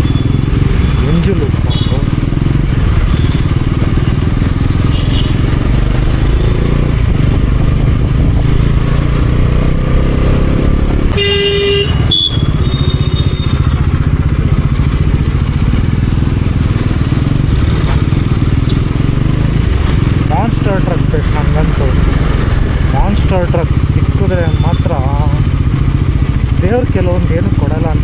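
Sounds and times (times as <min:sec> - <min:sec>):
motorcycle engine: 0:00.0 - 0:28.0
vehicle horn honking: 0:01.7 - 0:02.0, 0:04.8 - 0:05.4, 0:11.1 - 0:13.5
wind rumble: 0:05.7 - 0:11.2.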